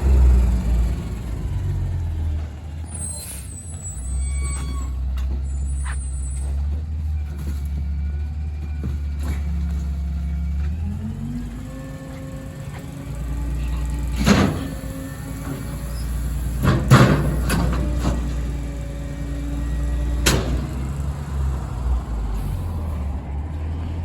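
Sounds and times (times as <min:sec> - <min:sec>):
diesel engine running: 0:00.0 - 0:24.0
trash compactor compacting: 0:00.0 - 0:24.0
high-pitched squeals: 0:02.9 - 0:06.7.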